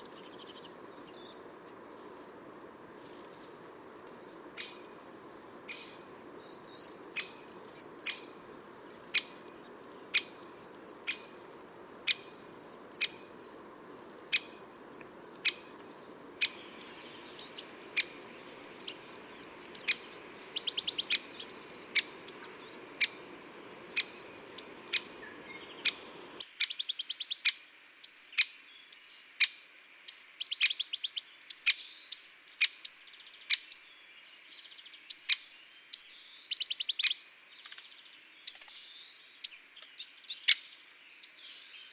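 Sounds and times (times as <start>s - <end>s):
songbirds chirping: 0.0s - 41.9s.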